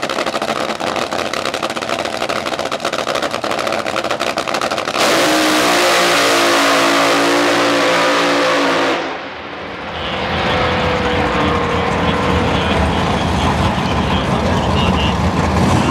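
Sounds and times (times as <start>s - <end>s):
dragster engine at full throttle: 0.0s - 15.9s
low rumble with falling tone: 9.5s - 15.9s.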